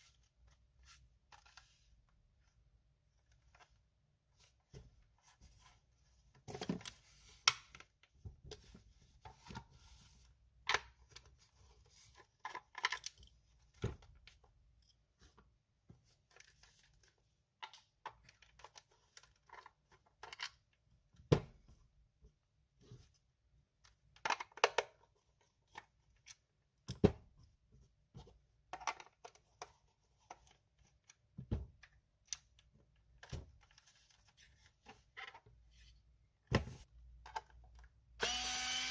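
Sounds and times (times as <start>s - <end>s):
plastic parts clicking and knocking: 12.2s - 15.0s, 16.2s - 21.6s, 23.8s - 27.5s, 28.2s - 35.6s, 36.4s - 38.1s.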